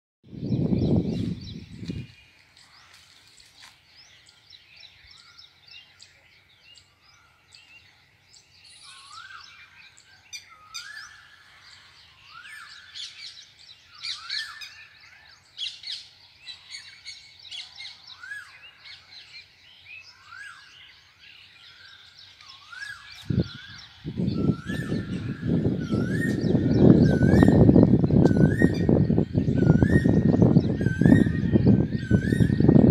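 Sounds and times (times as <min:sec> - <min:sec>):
birds chirping: 0:00.2 - 0:32.9
rising and falling bird call: 0:08.5 - 0:32.9.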